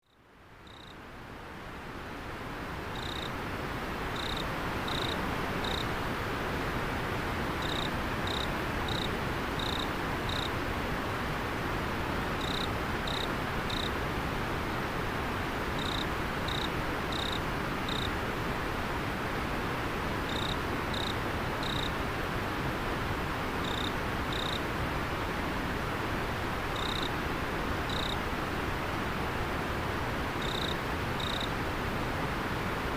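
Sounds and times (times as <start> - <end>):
insect chirping: 0.0 - 1.0, 2.9 - 3.3, 4.2 - 5.9, 7.6 - 10.6, 12.4 - 13.9, 15.8 - 18.1, 20.3 - 21.9, 23.6 - 24.6, 26.8 - 27.1, 27.9 - 28.2, 30.4 - 31.5
river water flowing: 1.1 - 32.9.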